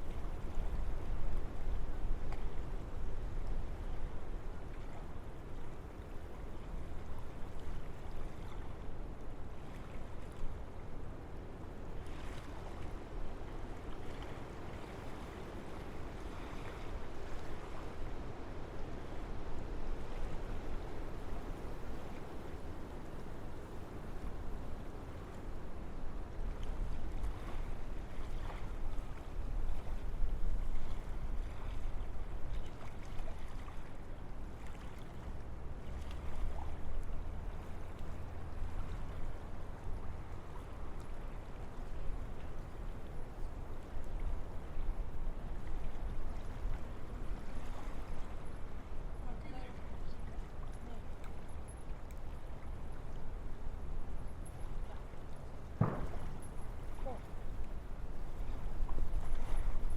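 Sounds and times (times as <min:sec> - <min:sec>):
wind rushing through trees: 0:11.6 - 0:32.4.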